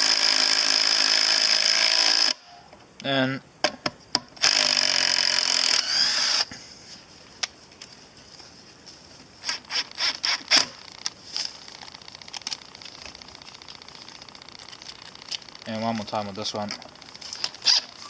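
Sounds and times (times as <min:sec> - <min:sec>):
cordless impact tool running: 0:04.4 - 0:06.5.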